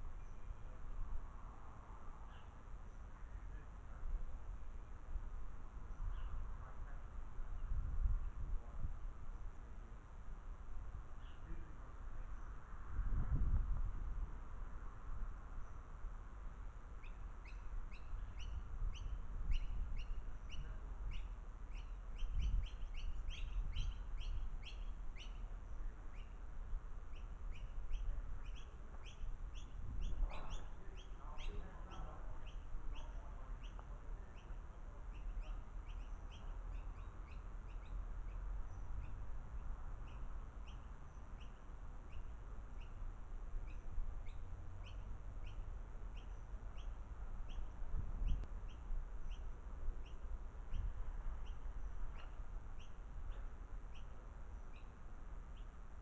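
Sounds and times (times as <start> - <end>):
bird chirping: 17.0 - 26.4, 27.1 - 43.0, 43.6 - 55.8
lower-pitched bird calls: 17.0 - 26.4, 27.1 - 43.0, 43.6 - 55.8.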